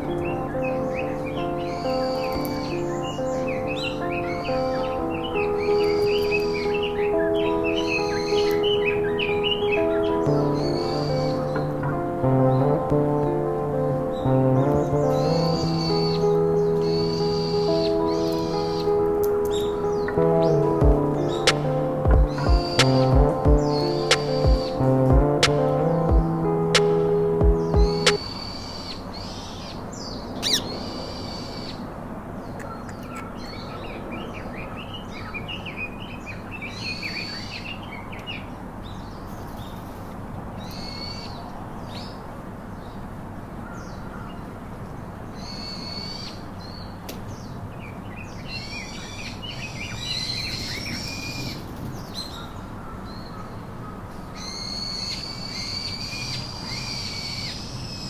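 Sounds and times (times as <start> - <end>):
background hiss: 0.0 - 32.6
sharp click: 26.8 - 27.0
parrots squawking: 30.4 - 31.7.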